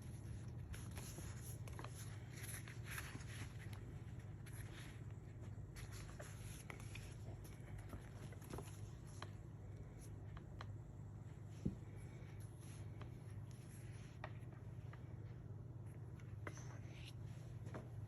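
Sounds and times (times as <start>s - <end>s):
paper rustling: 0.0s - 10.7s
low furnace hum: 0.0s - 18.0s.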